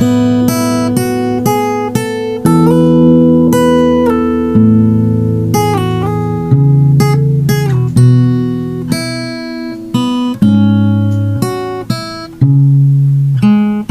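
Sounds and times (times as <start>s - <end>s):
acoustic guitar plucked melody: 0.0s - 13.9s.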